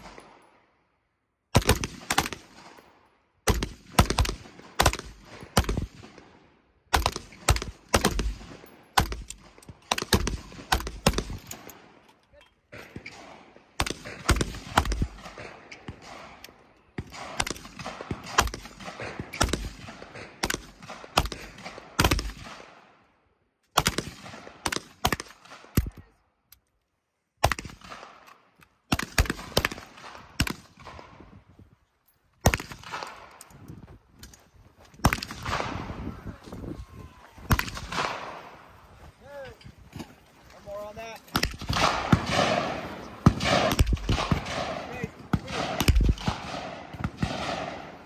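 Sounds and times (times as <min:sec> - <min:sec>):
gunshots with echo: 0:35.0 - 0:36.1, 0:37.5 - 0:38.7, 0:41.3 - 0:48.0.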